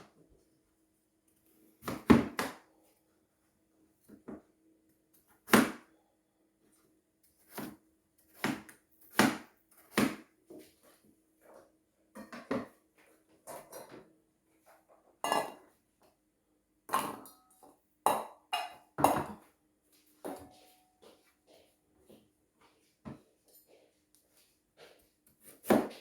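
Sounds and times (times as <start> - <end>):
cookware knocking and clinking: 15.2 - 15.6, 16.9 - 19.4.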